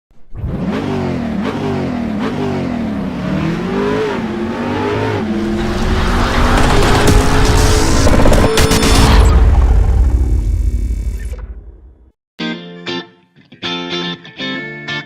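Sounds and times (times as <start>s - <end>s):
car engine revving: 0.3s - 11.1s.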